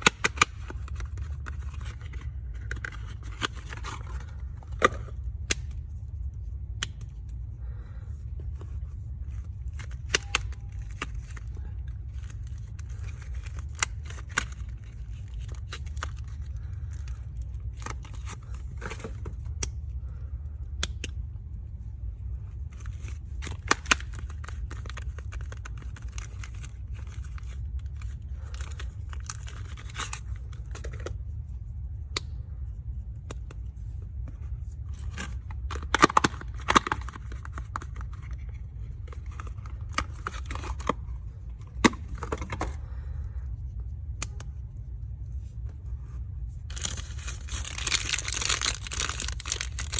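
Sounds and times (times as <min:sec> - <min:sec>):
packaging crinkling and tearing: 0:00.0 - 0:05.8, 0:09.2 - 0:19.5, 0:22.7 - 0:31.2, 0:34.9 - 0:42.8, 0:46.6 - 0:49.9
steady low hum: 0:00.0 - 0:49.9.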